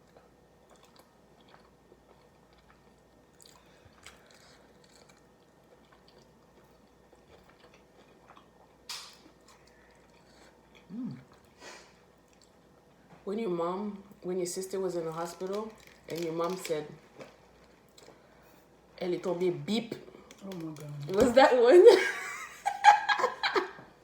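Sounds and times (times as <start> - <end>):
chewing and biting food: 0.0 - 11.6, 15.3 - 18.2
hum-like vocal sound: 10.8 - 11.4.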